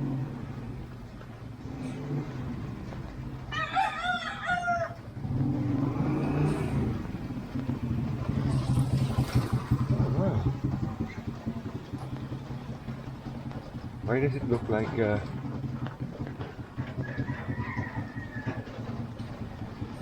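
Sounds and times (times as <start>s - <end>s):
vehicle engine hum: 0.0s - 20.0s
rooster crowing: 3.5s - 5.1s, 17.0s - 19.0s.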